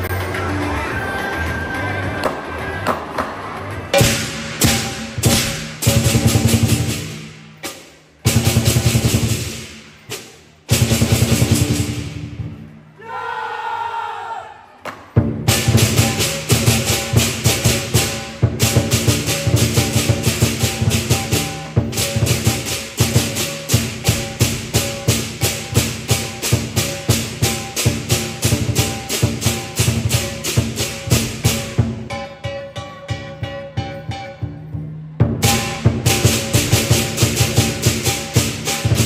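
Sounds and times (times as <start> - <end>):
big drum beating: 3.9 - 12.7, 15.2 - 32.2, 34.7 - 39.0
cymbals clashing: 3.9 - 12.7, 15.2 - 39.0.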